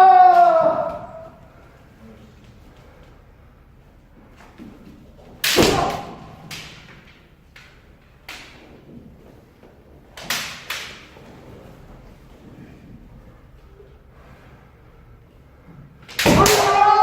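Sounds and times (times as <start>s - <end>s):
bamboo sword strikes: 5.4s - 7.0s, 16.2s - 17.0s.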